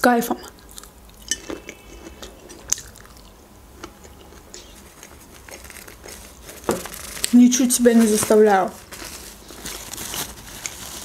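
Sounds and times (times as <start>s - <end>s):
soft chewing: 0.4s - 7.3s.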